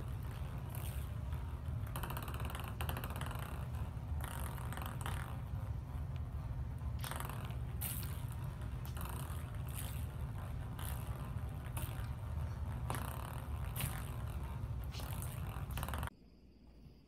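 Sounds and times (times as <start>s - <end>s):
steady low rumble: 0.0s - 16.1s
ball scraping and rolling: 0.0s - 16.2s.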